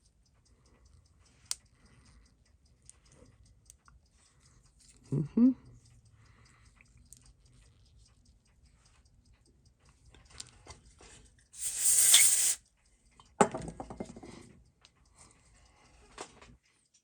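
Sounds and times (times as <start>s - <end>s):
faint light ticks: 0.0s - 11.5s
short hiss: 11.6s - 12.6s.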